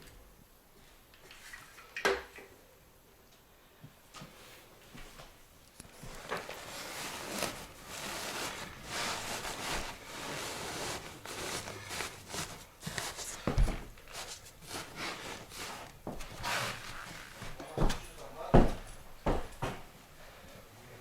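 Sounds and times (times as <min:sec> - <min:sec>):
rustling and scraping materials: 0:04.2 - 0:19.9.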